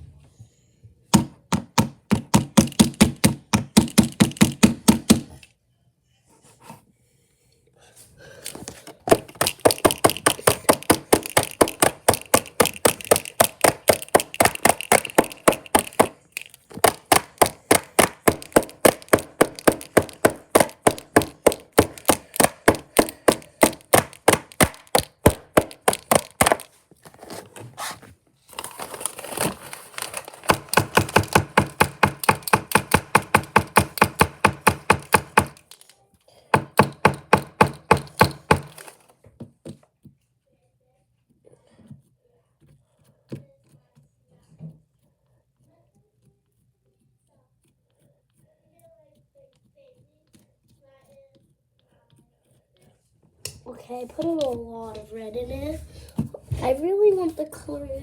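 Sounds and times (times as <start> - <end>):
slime squishing by hand: 8.4 - 34.1.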